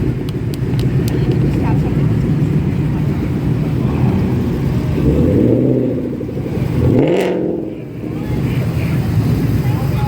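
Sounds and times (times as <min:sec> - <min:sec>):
traffic noise: 0:00.0 - 0:10.0
car engine revving past: 0:02.0 - 0:09.6.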